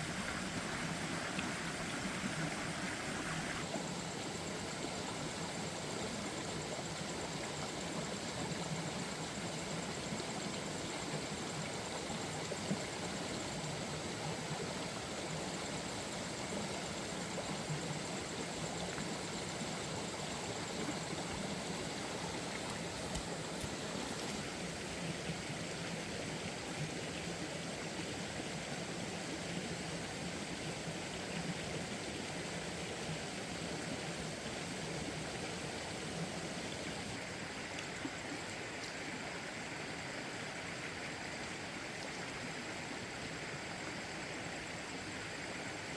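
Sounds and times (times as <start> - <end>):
rushing water: 0.0 - 45.9
faint ticks: 22.6 - 24.4.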